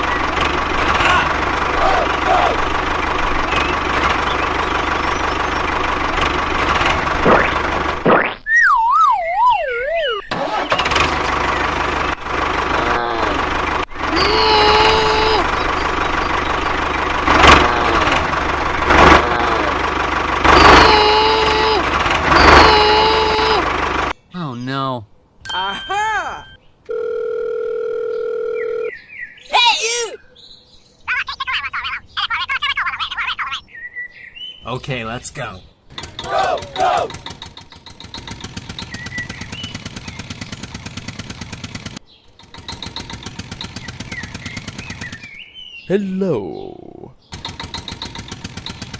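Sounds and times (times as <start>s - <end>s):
small engine chugging: 0.0s - 8.0s, 9.9s - 24.2s, 35.9s - 45.5s, 47.3s - 48.9s
small tractor motor clattering: 0.0s - 8.0s, 10.3s - 24.1s, 35.9s - 45.4s, 47.3s - 48.9s.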